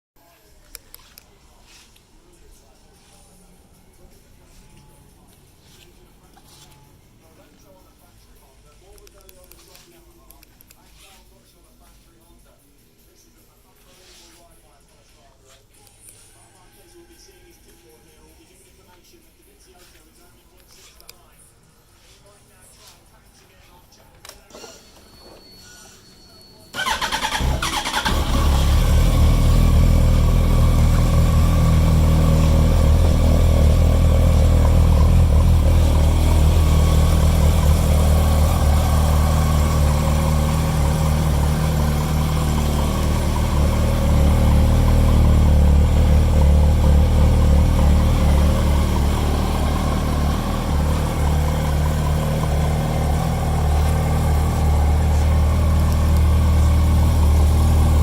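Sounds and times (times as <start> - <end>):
motorcycle engine idling: 26.8 - 58.0.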